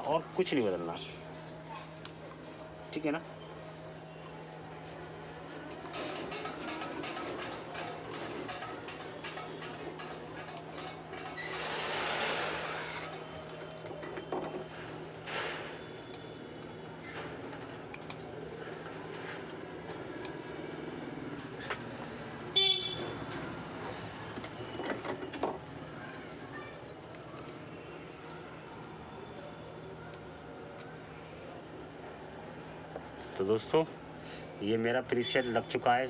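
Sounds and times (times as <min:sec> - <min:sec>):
faint clicks and handling noises: 0:04.2 - 0:11.6, 0:13.0 - 0:22.2, 0:23.3 - 0:29.0, 0:30.0 - 0:33.8
loud pitched honk: 0:22.6 - 0:23.1.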